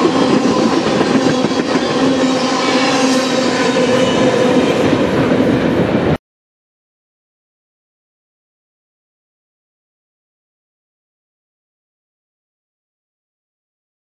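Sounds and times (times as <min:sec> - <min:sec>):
train wheels clattering over rails: 0:00.0 - 0:05.9.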